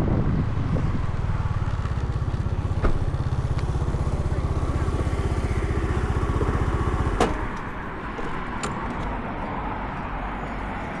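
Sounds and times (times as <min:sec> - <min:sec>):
motorcycle engine idling: 0:00.9 - 0:08.7.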